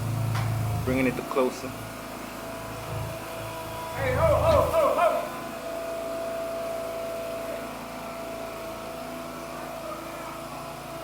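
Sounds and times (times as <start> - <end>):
machine engine running: 0.0 - 11.0
thin steady whine: 2.6 - 10.6.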